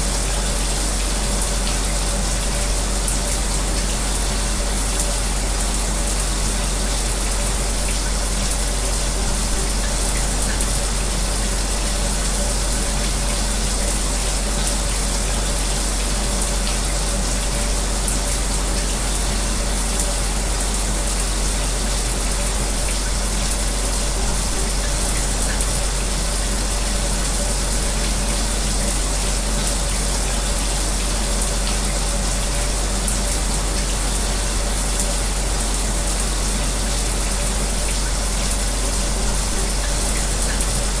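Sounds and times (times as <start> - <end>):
fan humming: 0.0 - 41.0
shower spray running: 0.0 - 41.0.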